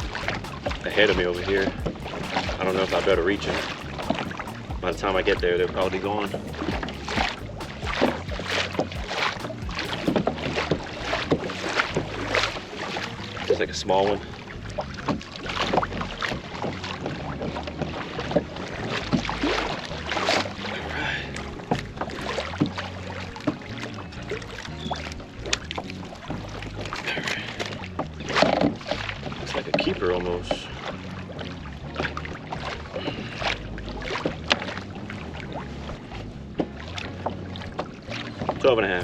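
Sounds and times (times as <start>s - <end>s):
steady low hum: 0.0s - 13.5s
low wind: 0.0s - 39.0s
water splashing against hull: 0.0s - 39.0s.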